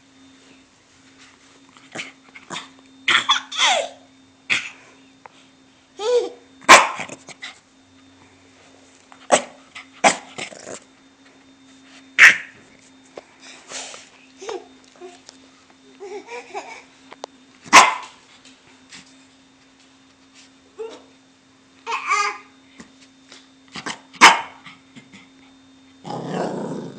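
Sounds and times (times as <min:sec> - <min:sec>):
puppy barking: 0:06.7 - 0:07.1, 0:12.2 - 0:12.5, 0:17.7 - 0:18.2, 0:24.2 - 0:24.6.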